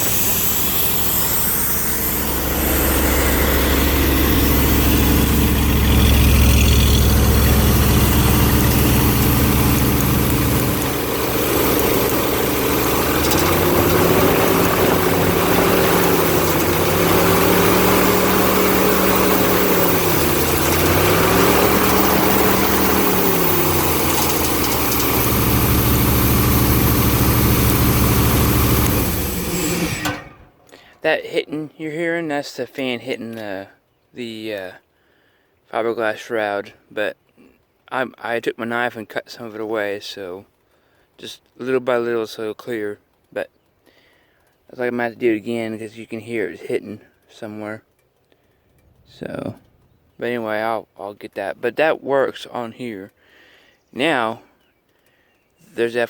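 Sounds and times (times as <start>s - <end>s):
engine running and revving: 0.0s - 30.4s.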